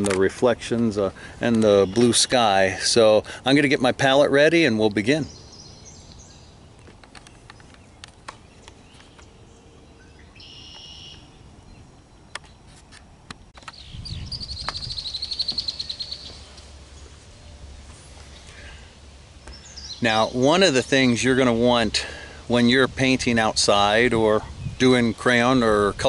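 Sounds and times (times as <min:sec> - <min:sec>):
bird call: 0:05.2 - 0:12.7, 0:13.6 - 0:17.6
fast high bird trill: 0:09.9 - 0:11.4, 0:13.7 - 0:16.7.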